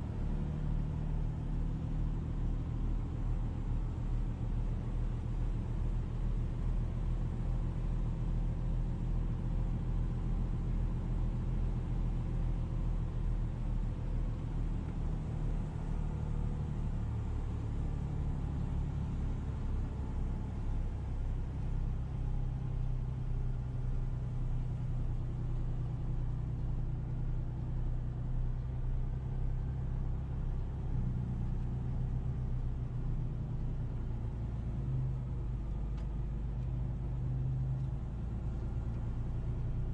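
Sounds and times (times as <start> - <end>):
road rumble: 0.0 - 39.9
car engine running: 11.2 - 39.9.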